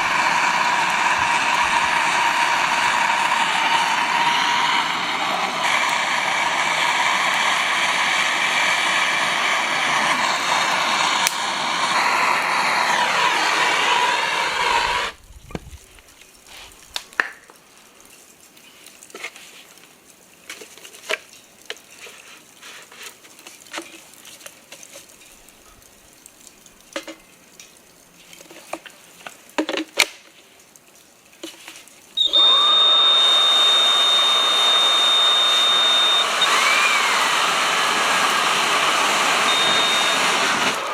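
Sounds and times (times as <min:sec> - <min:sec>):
leaf blower whine: 0:00.0 - 0:15.2, 0:32.2 - 0:40.9.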